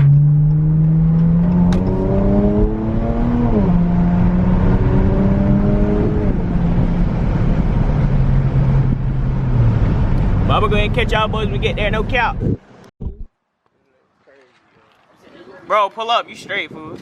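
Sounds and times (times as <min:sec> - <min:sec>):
car engine accelerating: 0:00.0 - 0:12.6.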